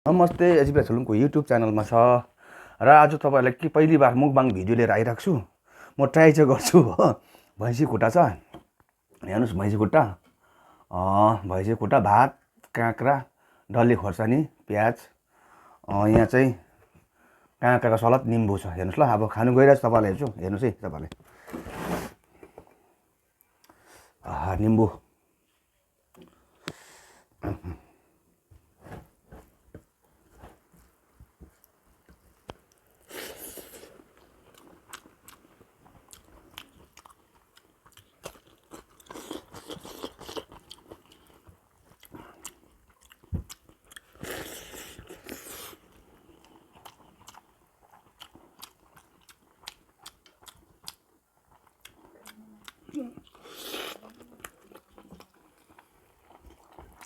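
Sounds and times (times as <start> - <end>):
person chewing and crunching food: 31.5 - 57.0.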